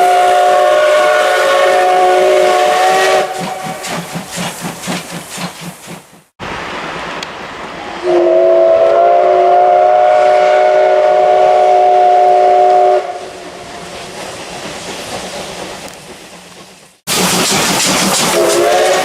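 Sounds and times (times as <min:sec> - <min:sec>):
steam locomotive whistle: 0:00.0 - 0:04.1, 0:08.0 - 0:13.5, 0:18.3 - 0:19.0
steam hissing: 0:00.0 - 0:19.0
train noise: 0:00.0 - 0:19.0.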